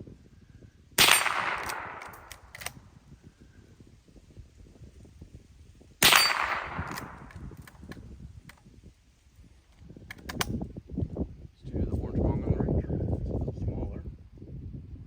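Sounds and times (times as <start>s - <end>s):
rifle shot: 1.0s - 2.9s, 6.0s - 8.0s
rifle lever clicks: 1.2s - 2.8s, 6.3s - 8.6s, 10.1s - 10.6s.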